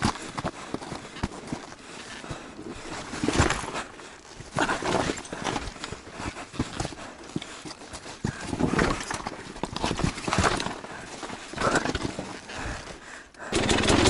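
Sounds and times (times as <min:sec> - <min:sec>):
motorcycle engine over rocks: 0:11.6 - 0:12.7, 0:13.5 - 0:14.0.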